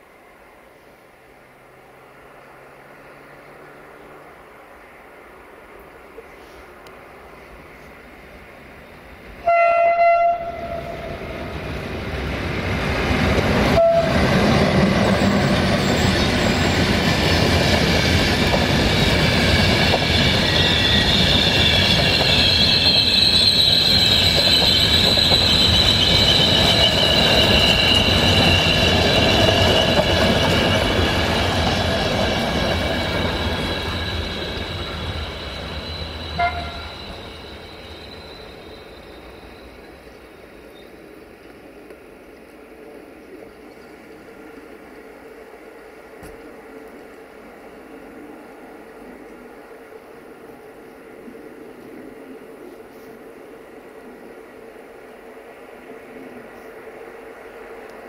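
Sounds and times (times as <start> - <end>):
train rumbling past: 0.0 - 58.0
train horn: 9.4 - 11.6, 13.6 - 14.4, 36.2 - 37.3
wheel squeal: 18.8 - 39.9.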